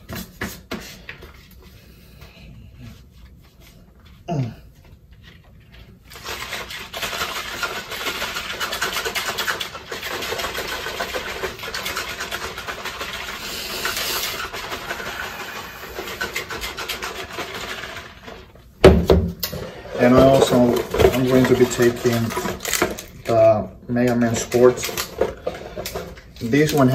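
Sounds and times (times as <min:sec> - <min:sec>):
rapid scraping and rubbing: 0:05.2 - 0:18.6, 0:19.6 - 0:22.9.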